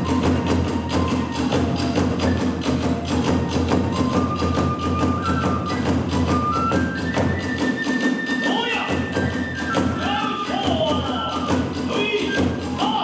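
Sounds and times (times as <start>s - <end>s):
flute melody: 0.0s - 13.0s
rapid drum beats: 0.0s - 13.0s
hand cymbal beats: 5.6s - 13.0s.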